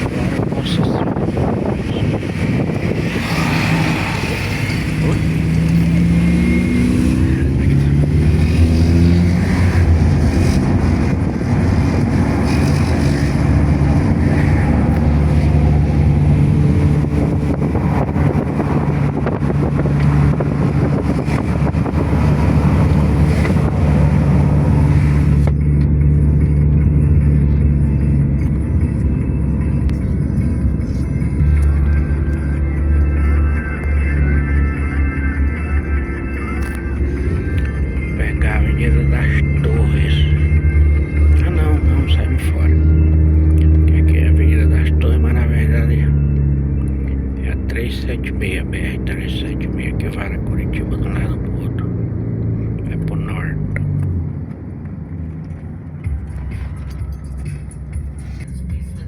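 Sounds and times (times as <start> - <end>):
road and wind hiss: 0.0 - 34.0
sports car engine from inside cabin: 0.0 - 59.0.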